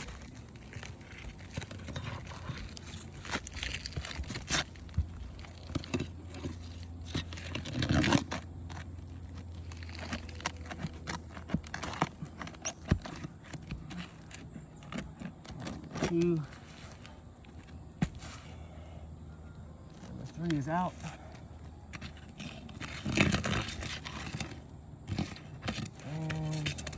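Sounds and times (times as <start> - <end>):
loud rough scrape: 0.0 - 8.8, 22.4 - 26.9
shingles crinkling and scraping: 0.0 - 26.9.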